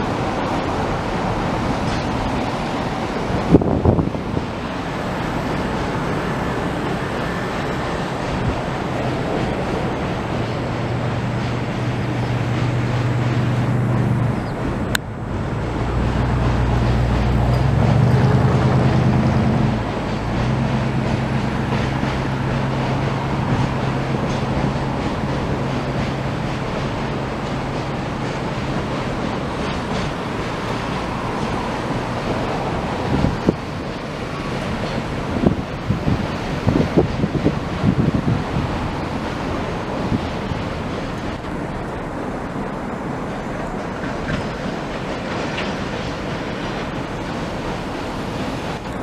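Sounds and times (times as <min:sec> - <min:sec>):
vehicle humming: 0:00.0 - 0:45.7
floodwater rushing: 0:00.0 - 0:49.0
wind: 0:00.0 - 0:49.0.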